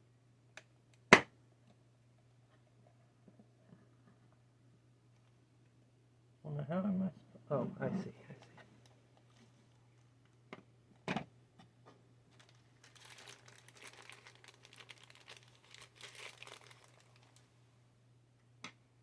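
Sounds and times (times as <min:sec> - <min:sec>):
packaging crinkling: 0:12.3 - 0:17.5.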